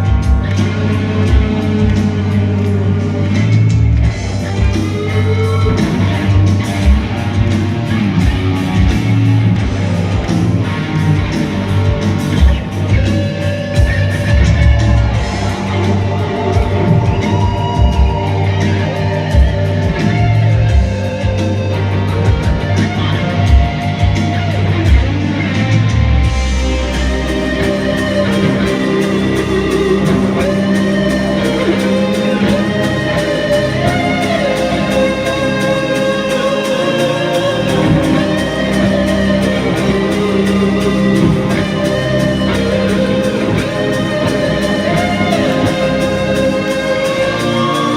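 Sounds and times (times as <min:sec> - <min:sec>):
drum beat: 0:00.0 - 0:21.5
electric guitar lead notes: 0:00.0 - 0:47.9
rock band playing: 0:00.0 - 0:47.9.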